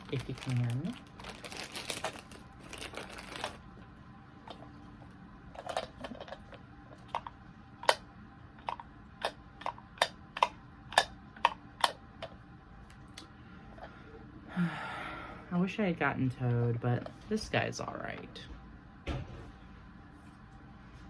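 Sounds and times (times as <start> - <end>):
plastic packaging crinkling: 0.0 - 3.8.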